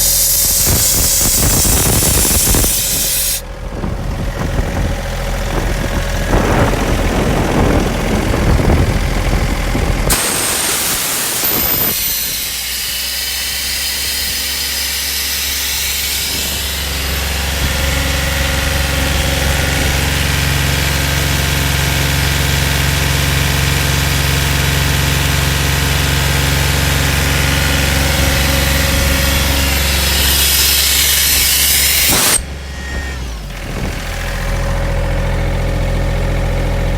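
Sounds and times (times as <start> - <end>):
compressed air hiss: 0.0 - 3.4, 10.1 - 17.0, 27.8 - 32.4
air compressor engine drone: 0.0 - 36.9.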